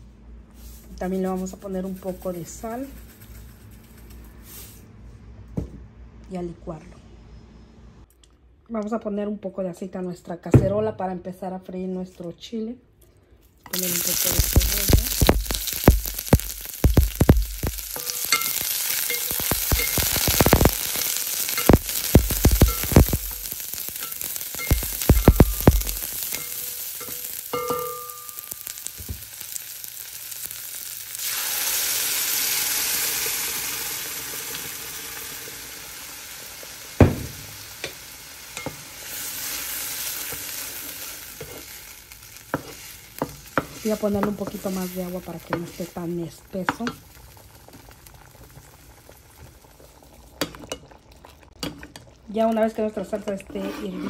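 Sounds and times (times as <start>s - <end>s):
onion sizzling in hot oil: 13.7s - 52.2s
sauce sizzling in hot oil: 13.7s - 52.4s
wooden spoon stirring: 42.5s - 46.0s.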